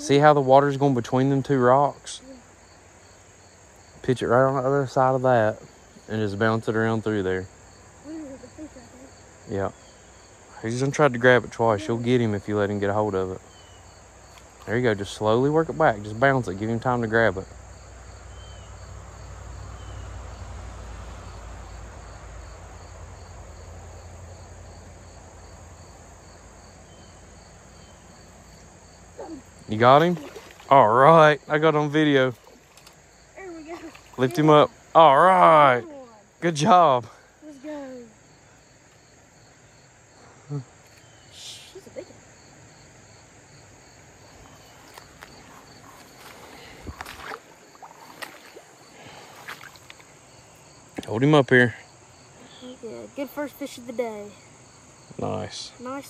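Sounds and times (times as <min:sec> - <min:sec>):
insect chirping: 0:00.0 - 0:56.0
flowing river water: 0:29.2 - 0:35.8, 0:44.3 - 0:51.1.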